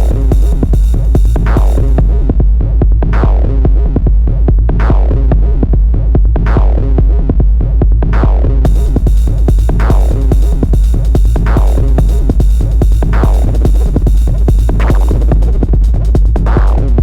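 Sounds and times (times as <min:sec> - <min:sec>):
hissing hi-hat: 0:00.0 - 0:02.3, 0:08.7 - 0:17.0
ticking drum machine: 0:00.0 - 0:02.6, 0:08.7 - 0:17.0
deep bass: 0:00.0 - 0:17.0.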